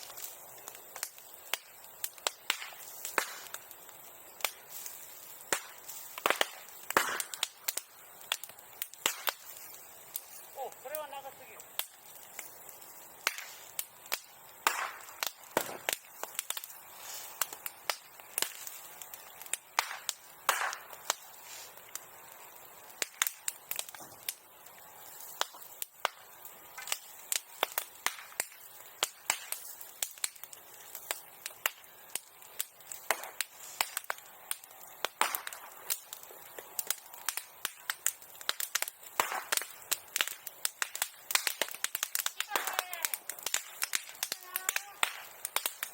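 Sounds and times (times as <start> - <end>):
bonfire crackling and popping: 0.0 - 45.9.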